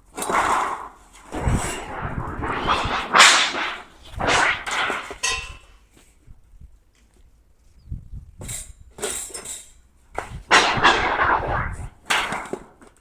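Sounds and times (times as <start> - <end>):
sheet metal rattling swishes: 0.2 - 5.6, 10.4 - 12.6.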